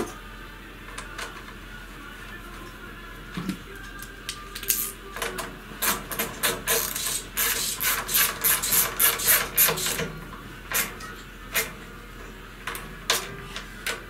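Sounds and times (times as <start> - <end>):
hand wrench rasping: 5.8 - 10.0.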